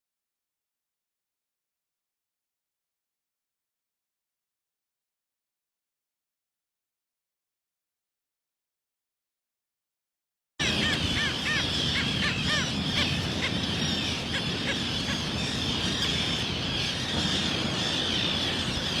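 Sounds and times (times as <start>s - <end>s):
small birds chirping: 10.6s - 19.0s.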